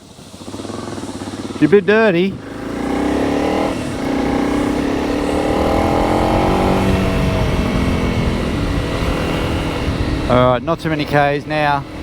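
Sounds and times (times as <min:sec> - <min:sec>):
motorcycle engine running: 0:00.0 - 0:12.0
wind rumble on microphone: 0:03.1 - 0:12.0.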